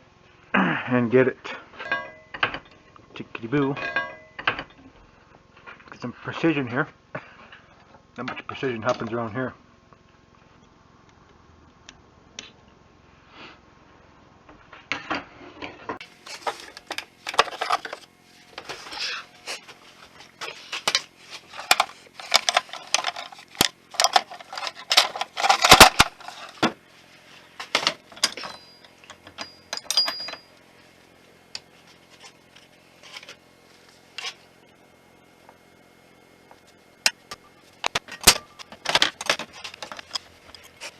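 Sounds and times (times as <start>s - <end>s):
metal tools clinking on workbench: 3.7s - 4.7s, 16.3s - 19.2s, 20.4s - 26.6s, 27.7s - 30.6s, 38.0s - 40.9s.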